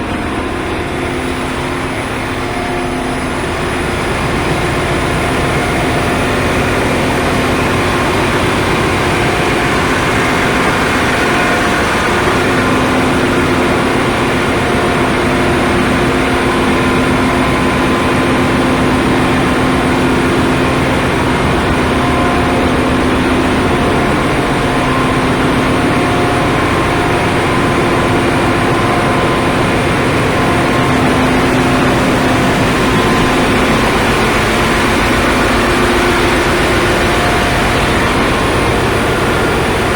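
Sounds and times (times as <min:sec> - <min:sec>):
engine-room machinery droning: 0:00.0 - 0:39.9.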